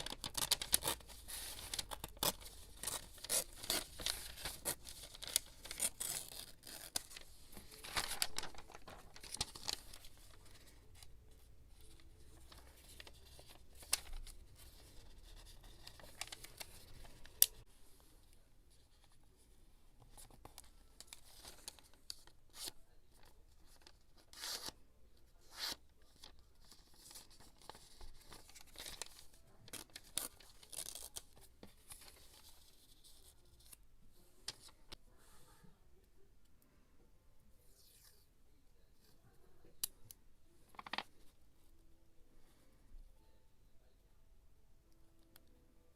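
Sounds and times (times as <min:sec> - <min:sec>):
paper tearing: 0:00.0 - 0:10.0
paper rustling: 0:00.0 - 0:17.6, 0:25.6 - 0:33.8, 0:40.7 - 0:41.3.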